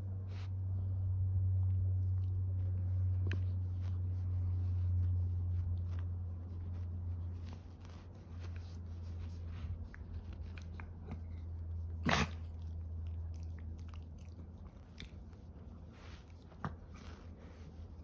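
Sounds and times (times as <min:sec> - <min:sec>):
steady low hum: 0:00.0 - 0:18.0
dog sound: 0:02.2 - 0:18.0
dog mouth clicking and chewing: 0:09.8 - 0:17.2.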